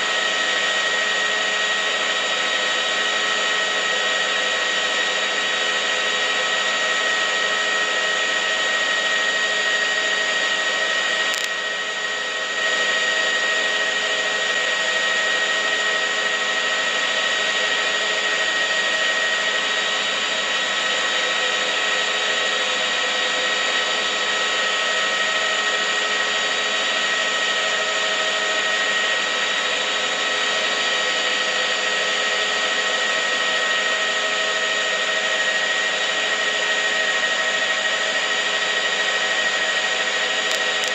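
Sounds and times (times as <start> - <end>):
mechanical whir with whining tones: 0.0 - 40.9.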